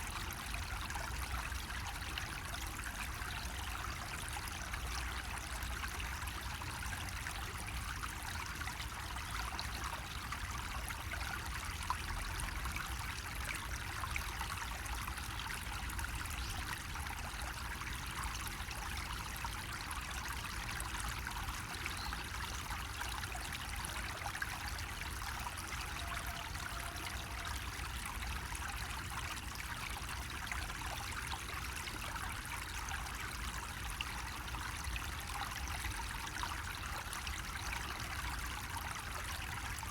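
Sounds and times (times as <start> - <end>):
water trickling from a spout: 0.0 - 39.9.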